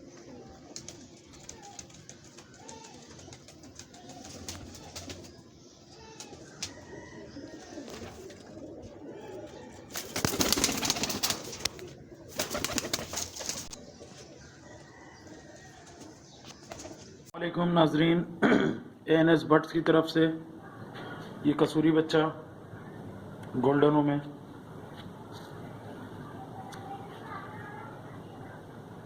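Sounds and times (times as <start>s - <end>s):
pigeons cooing softly: 0.0s - 17.3s
loud rustling bursts: 9.9s - 13.8s.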